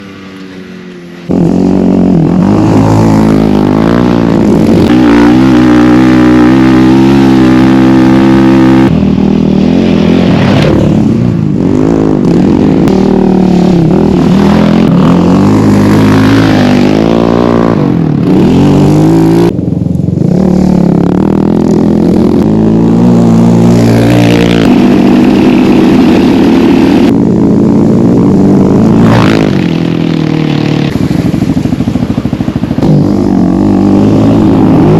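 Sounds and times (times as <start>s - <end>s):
atv engines revving: 0.0s - 34.9s.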